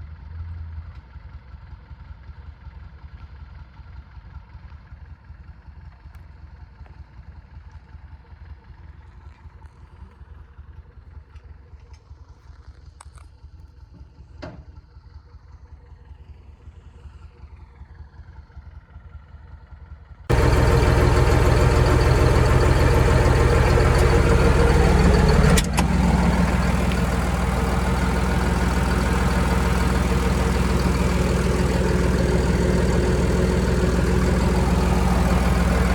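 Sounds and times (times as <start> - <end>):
faint low engine rumble: 20.3 - 35.9
heavy machine engine running loud: 20.3 - 35.9.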